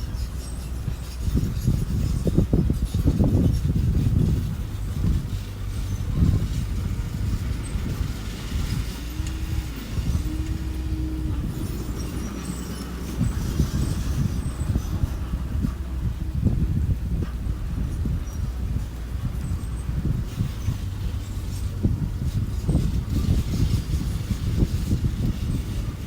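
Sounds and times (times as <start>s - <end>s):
diesel engine rumbling: 0.0s - 26.0s
steady whine: 0.0s - 26.0s.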